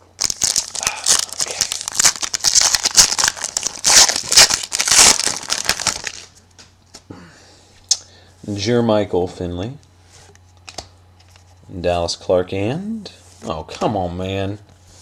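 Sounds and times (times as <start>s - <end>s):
foil wrapper tearing and crinkling: 0.2s - 6.4s.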